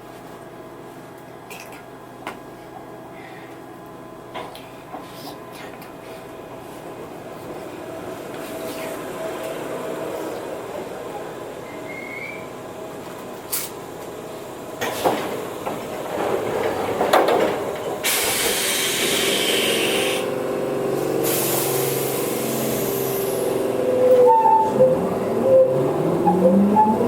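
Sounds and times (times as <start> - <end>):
train whine: 6.5 - 27.0
compressed air hissing: 18.0 - 20.3, 21.2 - 23.4.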